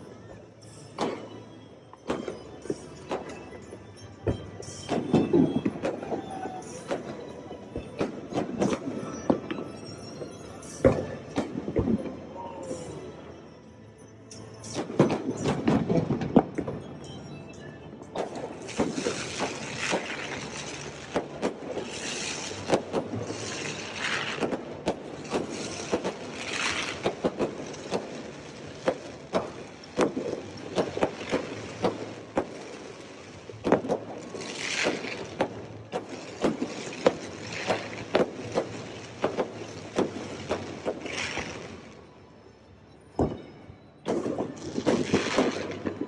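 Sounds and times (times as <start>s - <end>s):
fireworks banging: 0.0s - 13.0s, 14.6s - 17.2s, 18.0s - 42.1s, 43.1s - 46.0s
crackling hiss of bursting shells: 18.2s - 42.0s, 44.1s - 46.0s.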